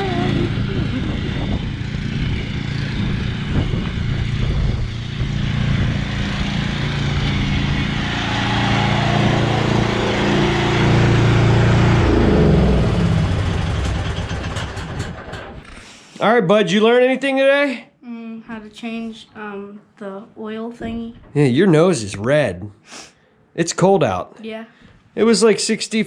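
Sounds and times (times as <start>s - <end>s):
riding lawn mower engine: 0.0s - 15.7s.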